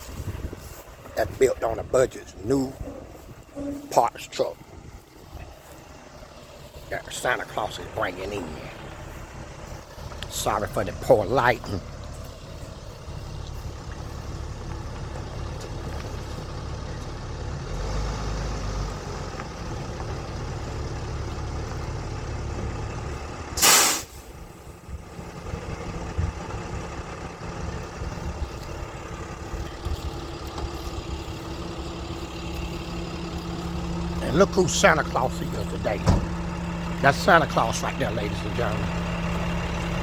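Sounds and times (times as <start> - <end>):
truck engine rumbling: 0.0 - 40.0
air brake hiss: 23.6 - 24.4.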